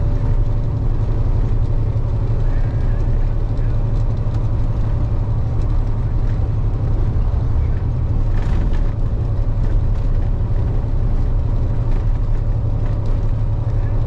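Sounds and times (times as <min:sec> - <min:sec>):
truck diesel engine drone: 0:00.0 - 0:14.0.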